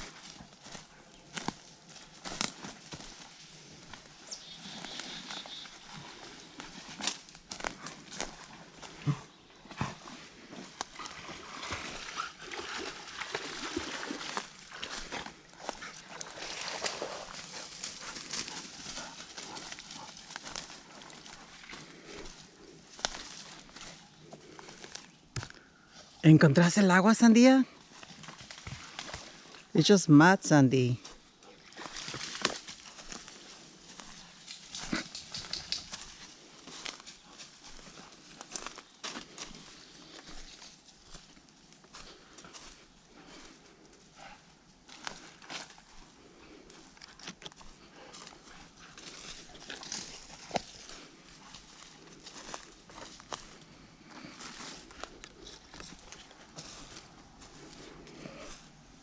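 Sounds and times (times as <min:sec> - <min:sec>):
dog splashing in muddy water: 0:09.9 - 0:22.0.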